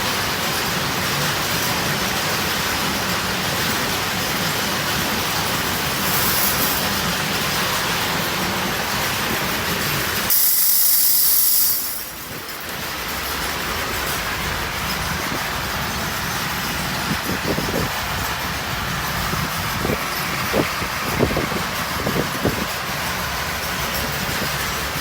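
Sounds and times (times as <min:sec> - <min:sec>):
noisy machine din: 0:00.0 - 0:25.0
loud high-pitched hiss: 0:03.3 - 0:18.3.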